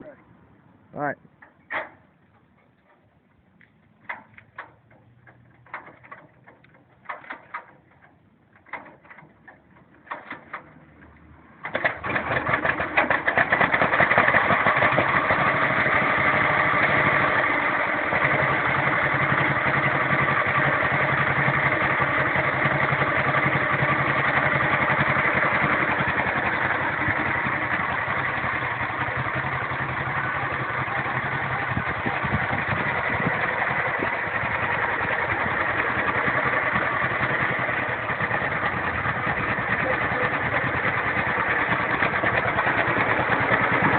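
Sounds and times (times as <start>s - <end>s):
tractor engine starting and running: 0.0s - 43.9s.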